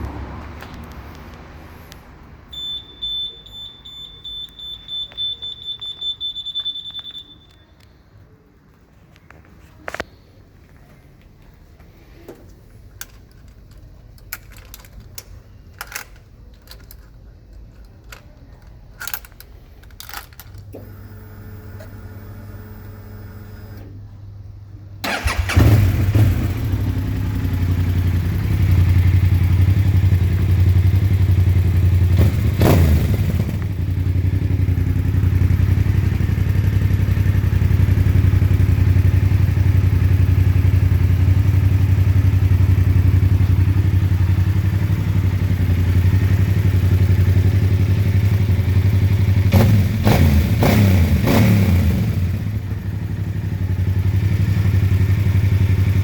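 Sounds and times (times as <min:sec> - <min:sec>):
motorcycle engine idling and revving: 0:20.8 - 0:23.8, 0:25.0 - 0:56.0.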